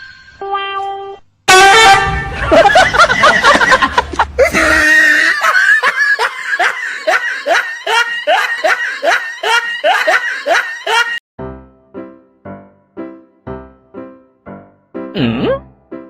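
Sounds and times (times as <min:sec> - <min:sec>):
person laughing hard: 0:02.1 - 0:11.2
piano notes: 0:11.4 - 0:16.0.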